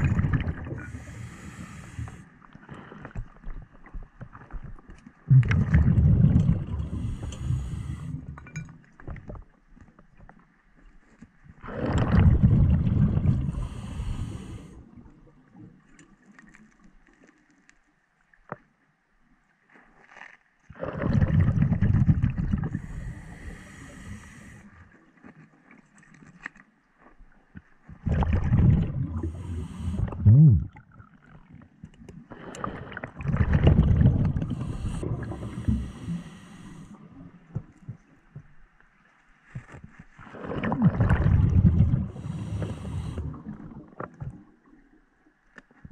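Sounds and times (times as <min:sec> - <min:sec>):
diver exhaling bubbles underwater: 0:00.0 - 0:03.6, 0:05.3 - 0:08.4, 0:11.6 - 0:14.8, 0:20.7 - 0:24.6, 0:28.0 - 0:31.1, 0:32.3 - 0:37.1, 0:40.2 - 0:44.4.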